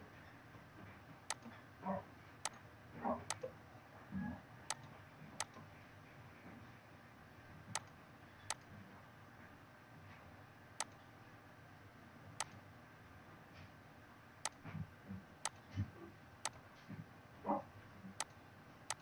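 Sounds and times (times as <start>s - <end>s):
computer mouse clicking: 10.8s - 11.0s, 15.4s - 15.7s, 18.2s - 19.0s.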